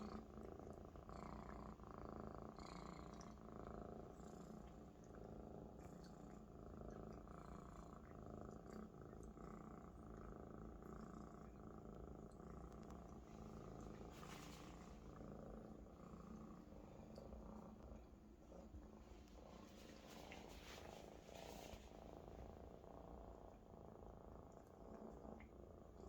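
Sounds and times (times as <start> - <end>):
kitten purring: 0.0 - 26.0
short rustle: 19.1 - 22.1.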